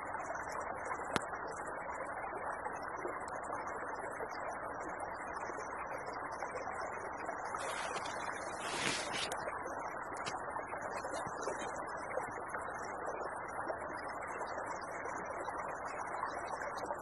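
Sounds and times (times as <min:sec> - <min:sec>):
creek flowing: 0:06.6 - 0:17.0.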